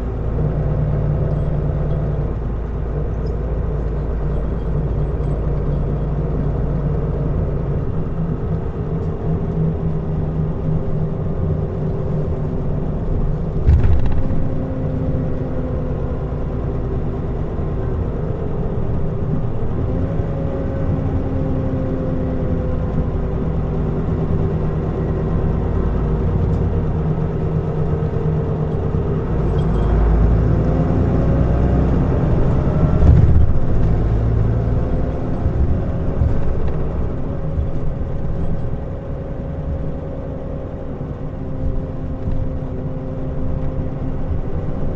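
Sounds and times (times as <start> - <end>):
bus diesel engine: 0.0 - 44.9
thump: 13.6 - 14.4.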